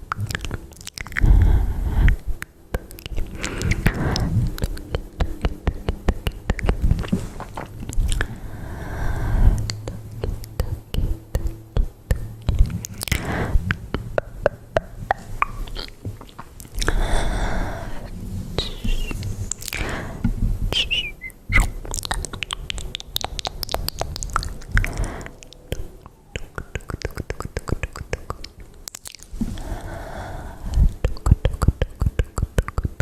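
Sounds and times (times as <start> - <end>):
wet mouth clicks and smacks: 0.0 - 1.4, 2.0 - 8.3, 9.6 - 17.0, 18.6 - 19.8, 20.8 - 29.4, 30.7 - 33.0
soft breathing: 1.1 - 2.4, 3.1 - 14.2, 16.7 - 20.9, 24.4 - 26.3, 29.3 - 31.3.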